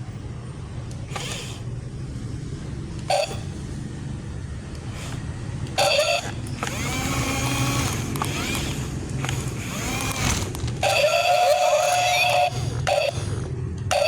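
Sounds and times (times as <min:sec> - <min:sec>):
motor running with low rumble: 0:00.0 - 0:14.0
wavering whines: 0:02.6 - 0:14.0.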